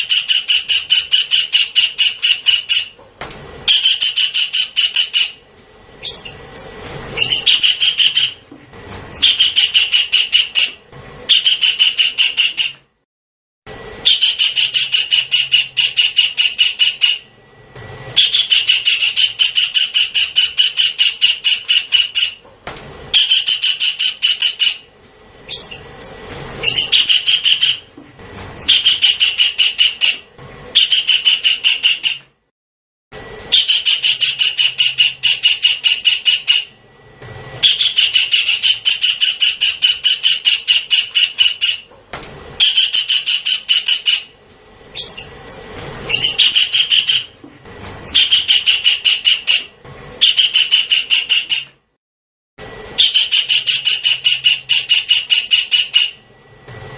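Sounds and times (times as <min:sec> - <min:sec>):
kingfisher rattling call: 0:00.0 - 0:03.0, 0:03.7 - 0:05.4, 0:06.0 - 0:08.4, 0:09.1 - 0:12.7, 0:14.0 - 0:17.3, 0:18.2 - 0:22.4, 0:23.1 - 0:24.9, 0:25.5 - 0:27.8, 0:28.6 - 0:30.2, 0:30.8 - 0:32.2, 0:33.5 - 0:36.7, 0:37.6 - 0:41.9, 0:42.6 - 0:44.3, 0:44.9 - 0:47.4, 0:48.0 - 0:51.6.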